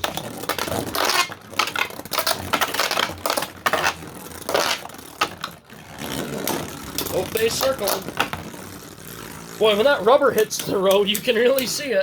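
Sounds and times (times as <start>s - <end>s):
spinning tops clattering and scraping: 0.0s - 11.9s.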